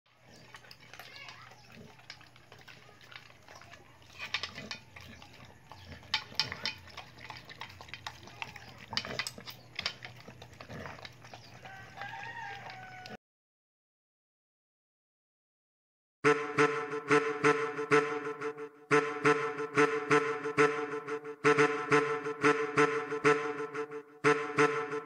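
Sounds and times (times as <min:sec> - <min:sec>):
dog eating from steel bowl: 0:00.1 - 0:13.2
rooster crowing: 0:11.5 - 0:13.2.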